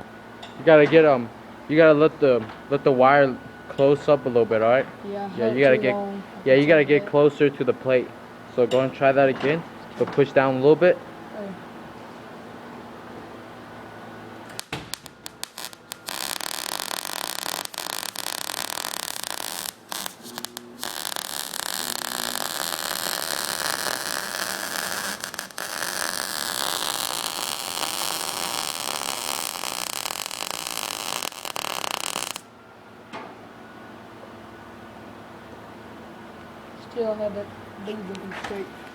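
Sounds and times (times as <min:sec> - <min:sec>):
welding arc crackling: 0:14.4 - 0:32.5.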